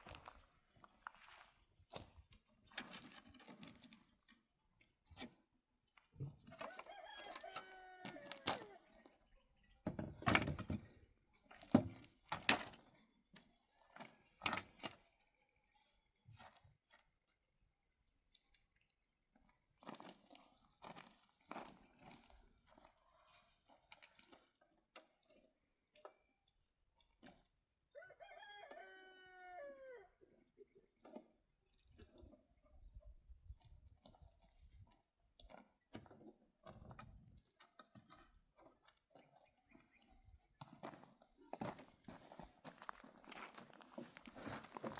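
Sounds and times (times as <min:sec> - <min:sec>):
rooster crowing: 0:06.6 - 0:08.8, 0:27.9 - 0:30.1.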